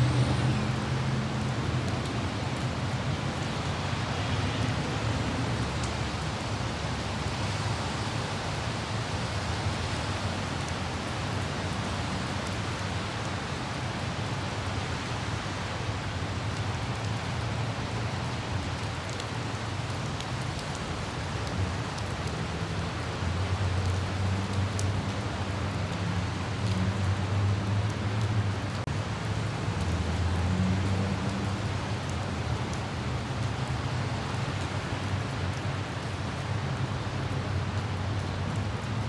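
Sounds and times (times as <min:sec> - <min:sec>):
car driving on wet road: 0:00.0 - 0:39.0
light rain: 0:00.0 - 0:39.0.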